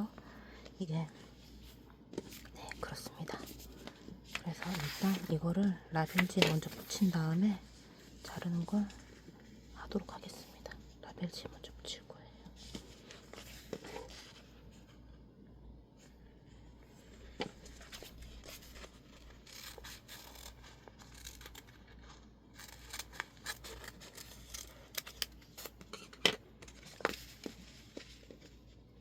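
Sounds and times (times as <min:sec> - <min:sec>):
paper rustling: 0:03.3 - 0:05.4.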